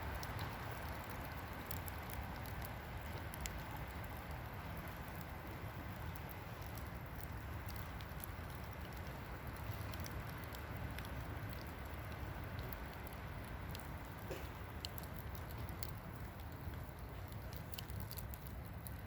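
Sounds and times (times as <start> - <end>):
campfire crackling and popping: 0.0 - 19.0
low rumble of wind: 0.0 - 19.0.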